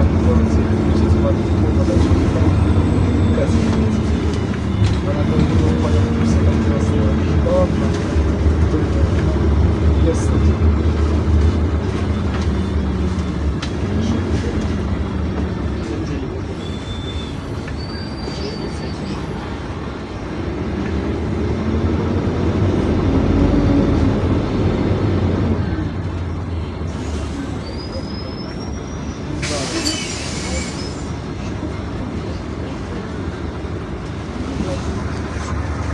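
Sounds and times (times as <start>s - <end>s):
bus engine drone: 0.0s - 35.9s
road noise: 0.0s - 35.9s
short high-pitched squeals: 16.5s - 19.2s.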